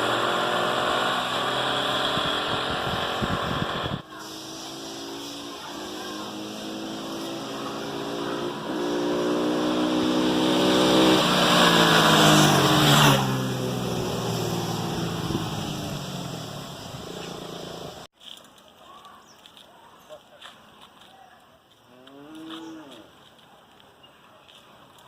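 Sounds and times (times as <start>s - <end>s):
motorcycle accelerating and passing: 0.0s - 18.1s.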